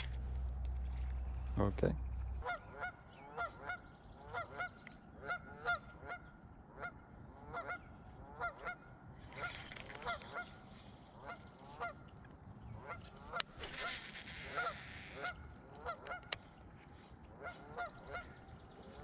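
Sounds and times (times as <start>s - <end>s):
goose honking: 2.4s - 8.8s, 12.8s - 16.3s, 17.4s - 18.4s.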